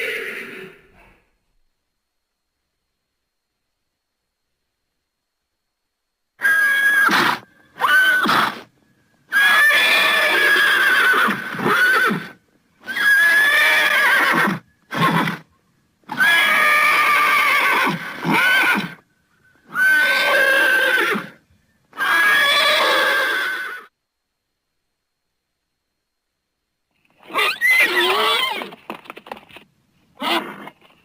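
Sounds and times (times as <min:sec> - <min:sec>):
horse whinnying: 0:00.0 - 0:01.0, 0:06.4 - 0:08.7, 0:09.3 - 0:15.4, 0:16.1 - 0:19.0, 0:19.7 - 0:23.9, 0:27.2 - 0:28.9, 0:30.2 - 0:30.9.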